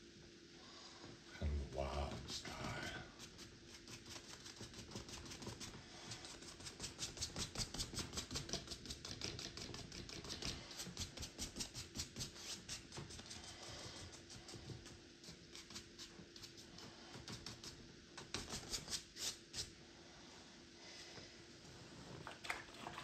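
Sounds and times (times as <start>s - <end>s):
faint steady hum: 0.0s - 23.0s
paintbrush dabbing on canvas: 2.4s - 19.7s.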